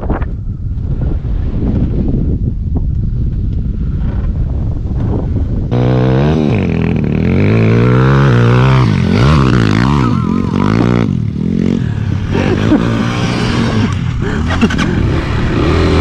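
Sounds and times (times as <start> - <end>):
motorcycle engine revving: 5.6 - 16.0.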